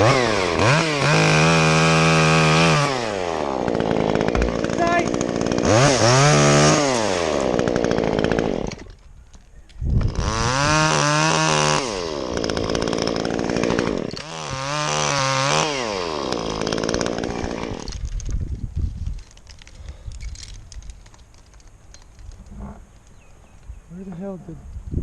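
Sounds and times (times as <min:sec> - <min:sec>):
chainsaw revving: 0:00.0 - 0:09.0, 0:10.0 - 0:18.2.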